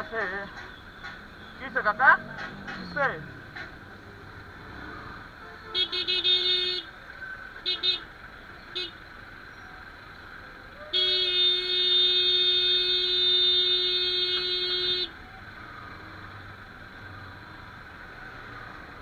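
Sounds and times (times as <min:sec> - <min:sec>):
engine and traffic hum: 0:00.0 - 0:19.0
vehicle horn blasts: 0:05.4 - 0:07.0, 0:07.6 - 0:08.1, 0:08.8 - 0:09.0, 0:10.9 - 0:15.2.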